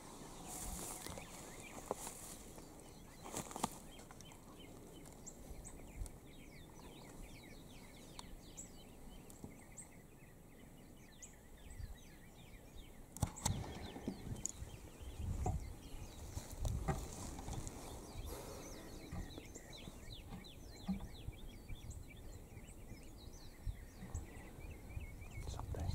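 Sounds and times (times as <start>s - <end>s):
small birds chirping: 0.0s - 25.9s
sharp clicks: 13.1s - 14.6s.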